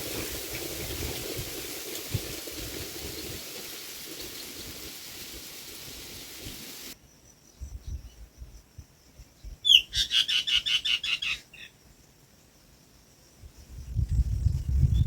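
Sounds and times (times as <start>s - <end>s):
rain-like hiss: 0.0s - 7.0s.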